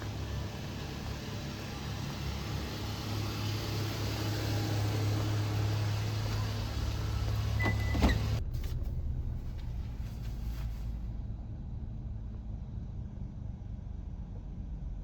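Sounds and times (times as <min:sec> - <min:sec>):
road hiss: 0:00.0 - 0:08.8
car engine low drone: 0:00.0 - 0:15.0.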